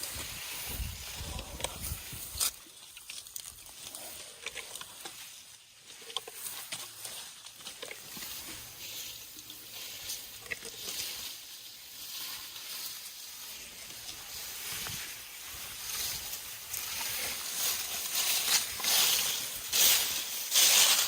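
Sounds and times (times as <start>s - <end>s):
leafy branches rustling: 0.0s - 21.0s
twigs crackling and snapping: 1.6s - 5.4s.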